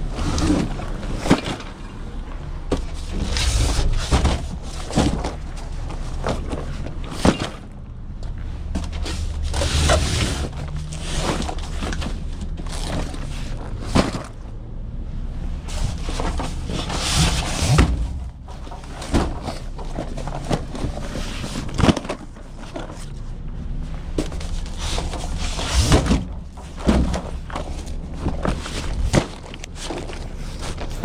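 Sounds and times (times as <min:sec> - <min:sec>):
low rumble and hiss: 0:00.0 - 0:31.0
knocks and thumps: 0:15.8 - 0:22.3, 0:24.2 - 0:29.6.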